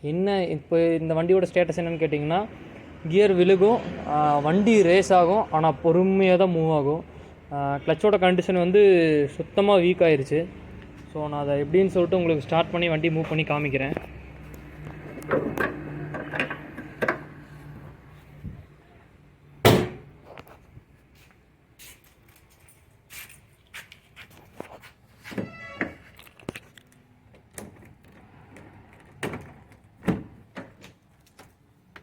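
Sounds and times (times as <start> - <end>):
car door shutting: 19.6 - 20.1.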